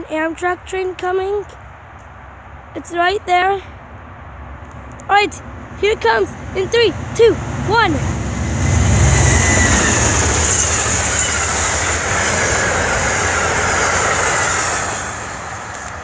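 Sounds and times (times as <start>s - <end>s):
diesel locomotive engine rumble: 2.5s - 16.0s
train wheels rushing on rails: 5.5s - 16.0s
faint high whine: 9.1s - 13.3s.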